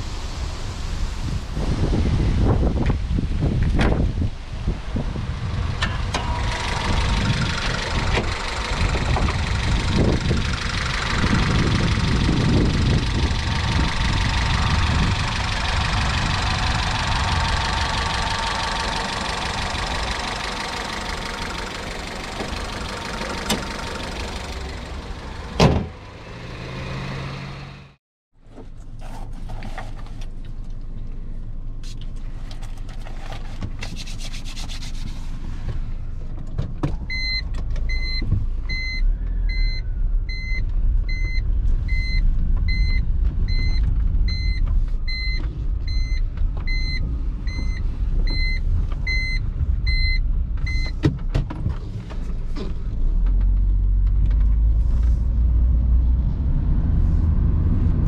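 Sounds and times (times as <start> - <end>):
wind on microphone: 1.1 - 18.4
car engine idling: 5.2 - 26.7
loud thump: 25.6 - 26.0.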